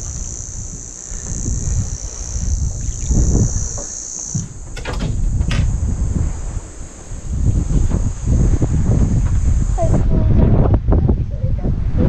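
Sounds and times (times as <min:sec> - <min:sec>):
high-pitched insect drone: 0:00.0 - 0:10.0
wind buffeting microphone: 0:00.0 - 0:12.0
clicks: 0:02.9 - 0:05.8.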